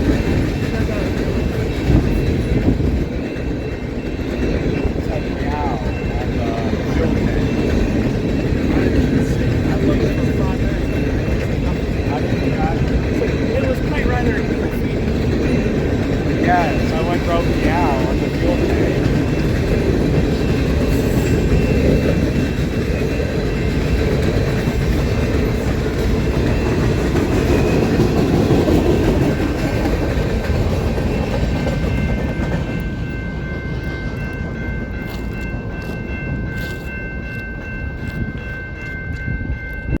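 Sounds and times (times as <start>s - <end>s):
train wheels rumbling on rail: 0.0s - 40.0s
wheels clicking over rail joints: 0.0s - 40.0s
high-pitched ringing tone: 0.4s - 28.0s.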